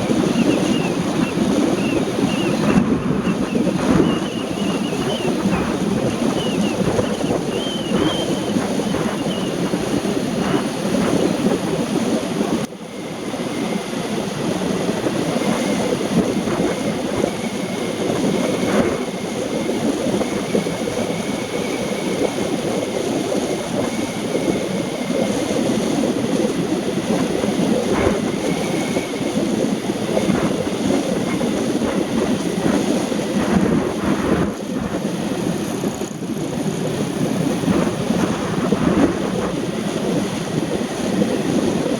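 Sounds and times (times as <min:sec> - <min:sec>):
road and wind noise: 0:00.0 - 0:41.9.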